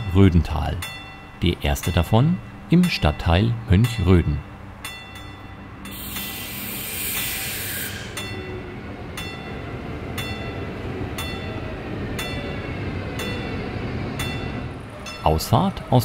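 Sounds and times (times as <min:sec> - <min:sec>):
train wheels rumbling on rail: 0:00.0 - 0:16.0
bright hiss: 0:05.9 - 0:08.5.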